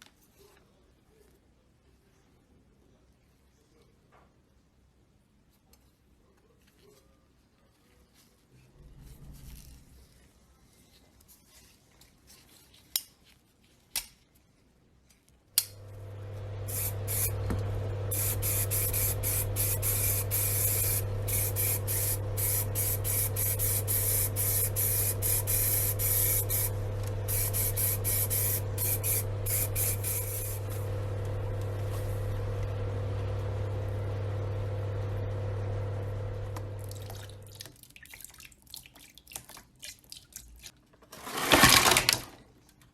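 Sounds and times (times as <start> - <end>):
air compressor humming: 15.7 - 37.5
compressed air hissing from nozzle: 16.7 - 31.0.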